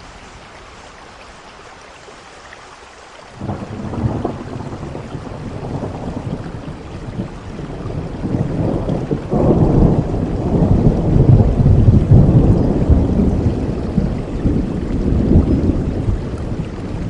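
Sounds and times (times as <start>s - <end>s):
steady rain: 0.0s - 17.0s
low rumble of thunder: 3.4s - 17.0s.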